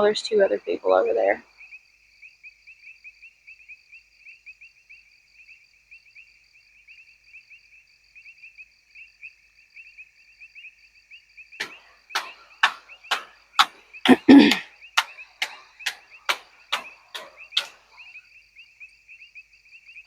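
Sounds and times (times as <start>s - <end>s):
insects trilling: 10.6s - 20.0s
sharp knocks: 11.6s - 17.8s.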